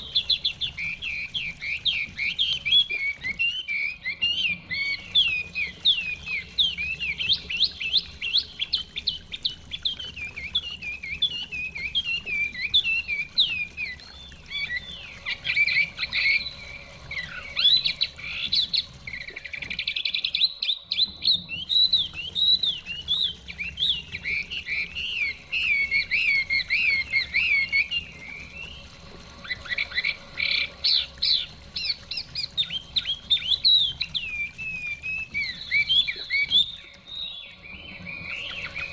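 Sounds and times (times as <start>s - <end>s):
bird singing whistled phrases: 0.0s - 38.9s.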